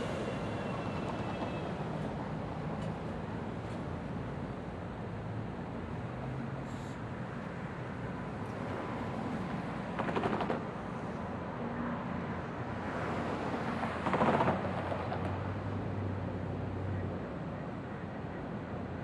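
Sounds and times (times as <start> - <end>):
light rail train rumbling: 0.0 - 5.0.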